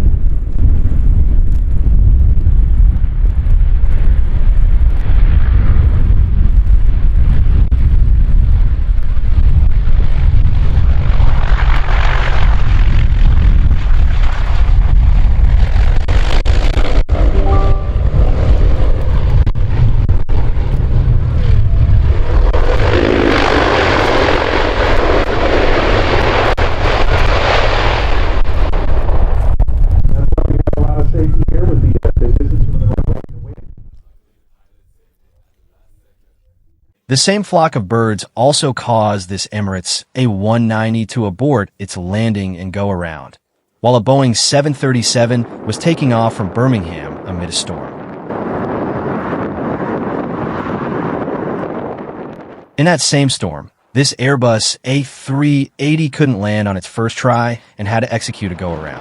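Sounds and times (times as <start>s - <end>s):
wind buffeting microphone: 0.0s - 17.4s, 18.0s - 34.8s, 47.1s - 52.8s.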